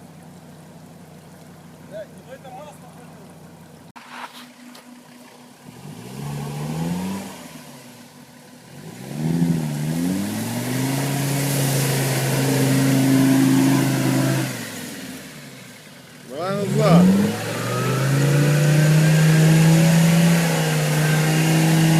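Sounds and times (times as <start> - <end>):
diesel engine revving hard: 5.7 - 15.6, 16.4 - 21.9.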